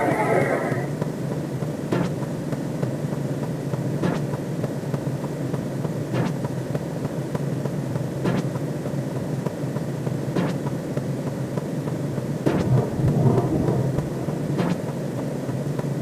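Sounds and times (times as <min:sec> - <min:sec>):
synthetic sci-fi drone: 0:12.5 - 0:15.7.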